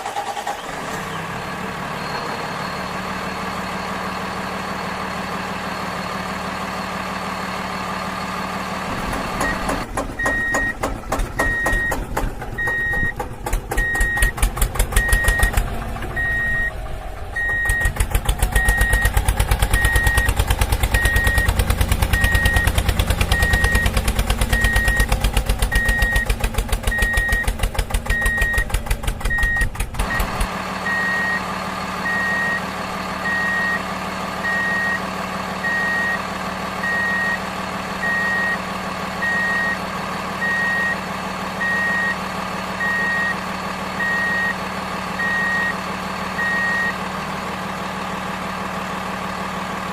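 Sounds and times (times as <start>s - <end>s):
diesel engine: 0.0s - 49.9s
reversing alarm beeping: 9.4s - 10.8s, 11.4s - 12.0s, 12.6s - 13.2s, 13.8s - 14.4s, 15.0s - 15.6s, 16.2s - 16.8s, 17.4s - 18.0s, 18.6s - 19.2s, 19.8s - 20.4s, 21.0s - 21.6s, 26.9s - 28.7s, 29.3s - 32.6s, 33.2s - 36.2s, 36.8s - 37.4s, 38.0s - 39.8s, 40.4s - 41.0s, 41.6s - 42.2s, 42.8s - 43.4s, 44.0s - 44.6s, 45.2s - 45.8s, 46.4s - 47.0s.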